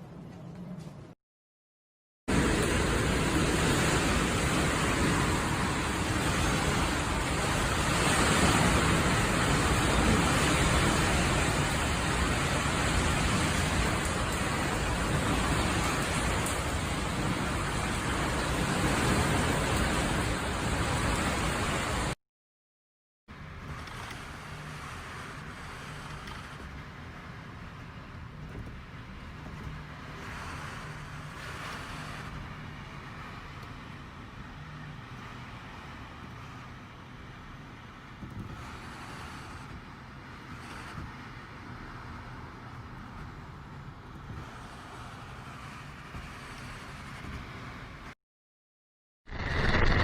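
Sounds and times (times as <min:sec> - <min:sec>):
strong wind and heavy rain: 0:02.3 - 0:22.2, 0:23.3 - 0:48.2.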